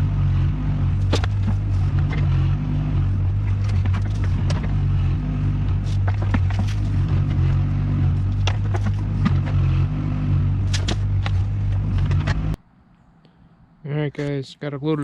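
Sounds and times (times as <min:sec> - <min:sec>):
digging machine engine running: 0:00.0 - 0:12.6
knocks and clanks: 0:01.0 - 0:02.6, 0:03.2 - 0:04.9, 0:05.7 - 0:09.7.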